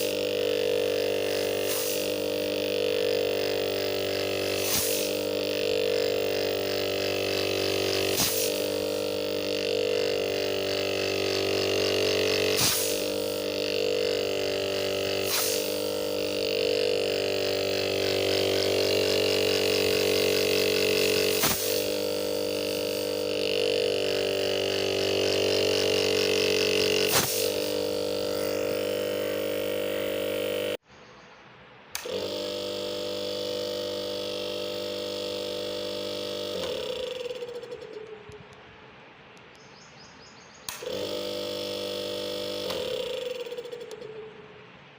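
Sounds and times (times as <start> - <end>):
refrigerator compressor humming: 0.0 - 30.8, 31.7 - 39.6, 40.5 - 44.9
short clicks: 31.9 - 32.8, 40.6 - 44.2.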